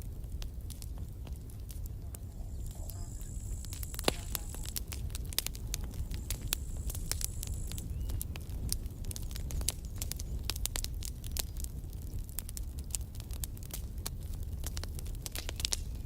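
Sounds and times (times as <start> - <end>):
low rumble: 0.0 - 11.3
campfire crackling: 0.0 - 16.0
wood popping: 0.0 - 16.0.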